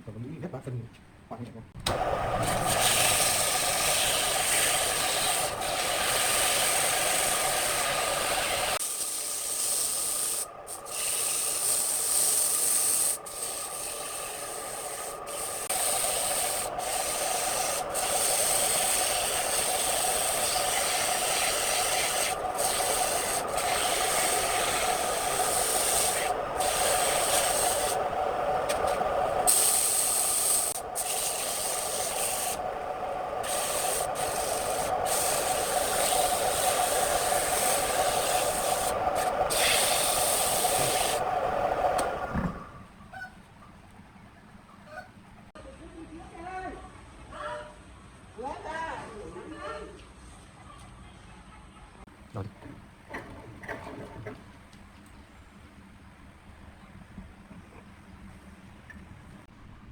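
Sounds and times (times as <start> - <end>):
tool hissing on lathe wood: 1.9 - 42.8.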